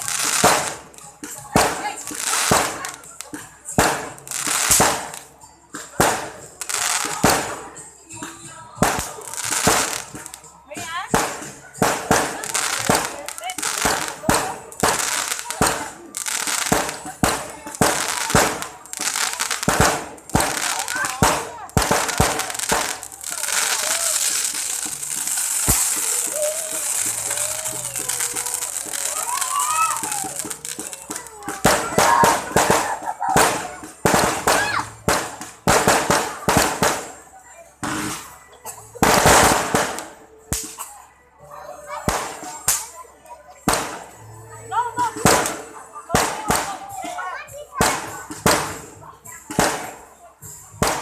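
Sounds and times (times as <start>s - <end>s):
fireworks bangs: 0.0s - 3.1s, 3.7s - 7.8s, 8.8s - 38.4s, 39.0s - 40.8s, 43.6s - 44.2s, 45.2s - 47.0s, 47.8s - 50.1s, 50.8s - 51.0s
crackling hiss of fireworks: 0.0s - 51.0s.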